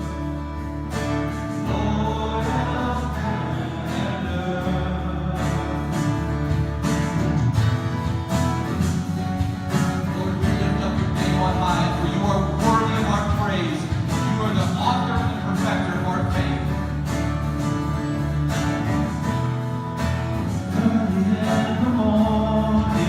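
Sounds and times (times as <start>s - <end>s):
guitar strumming: 0.0s - 23.0s
congregation singing: 1.4s - 6.7s, 20.5s - 23.0s.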